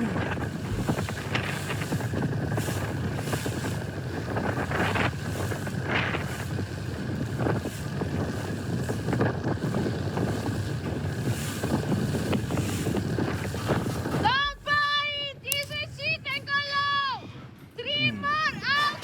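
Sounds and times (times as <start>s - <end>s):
waves splashing against hull: 0.0s - 14.8s
wind buffeting microphone: 0.0s - 17.8s.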